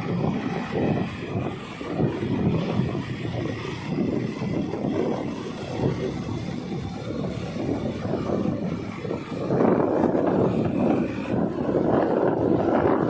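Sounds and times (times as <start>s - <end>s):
scooter engine noise: 0.0s - 13.0s
wind buffeting microphone: 0.0s - 13.0s.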